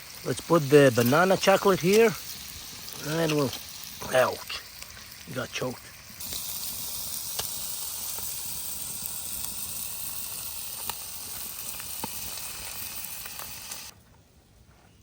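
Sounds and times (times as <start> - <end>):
fish and onion sizzling in a pan: 0.0 - 13.9.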